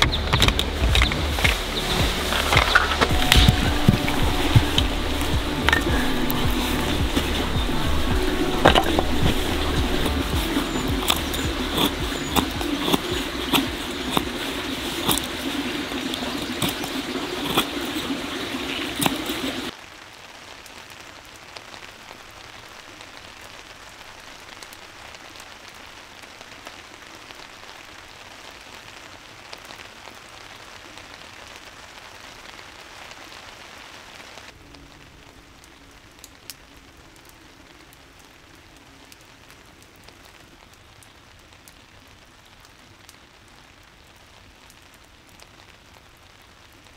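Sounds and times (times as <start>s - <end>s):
drops ticking: 0.0s - 19.7s
rain falling: 0.0s - 46.9s.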